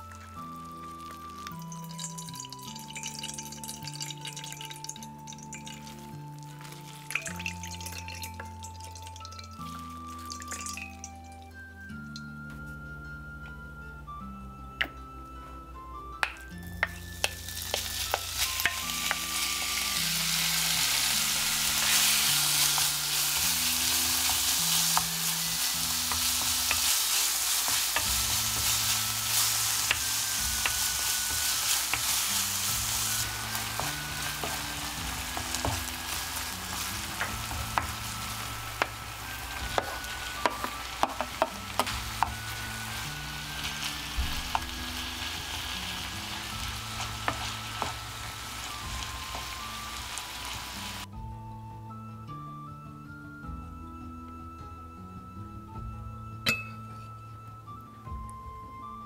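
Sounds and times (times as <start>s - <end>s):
meat sizzling in a frying pan: 0.0s - 11.0s, 17.0s - 51.1s
soft background music: 0.0s - 59.0s.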